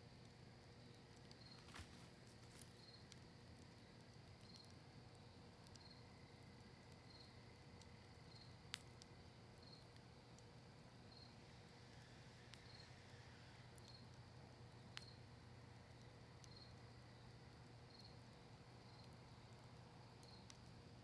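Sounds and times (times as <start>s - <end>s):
campfire crackling: 0.0s - 21.0s
cricket chirping: 0.8s - 1.9s, 2.5s - 6.4s, 16.4s - 19.6s.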